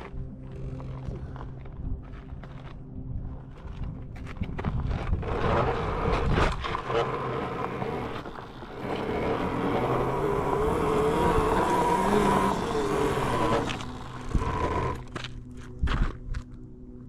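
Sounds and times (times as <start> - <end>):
road and wind noise: 0.0 - 17.0
electric motor whine: 4.6 - 16.5.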